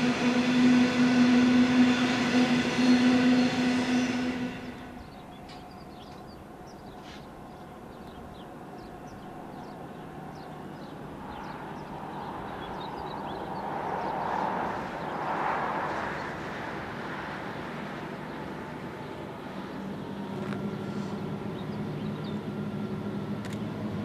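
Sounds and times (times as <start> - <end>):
train rumbling: 0.0 - 24.0
small birds chirping: 4.7 - 14.2.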